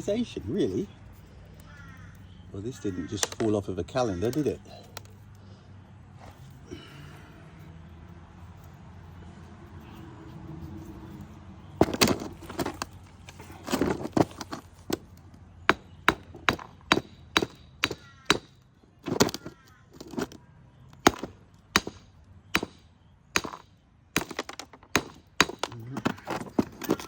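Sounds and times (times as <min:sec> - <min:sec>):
hand tool knocking hard part: 0:15.7 - 0:20.2, 0:24.2 - 0:27.0.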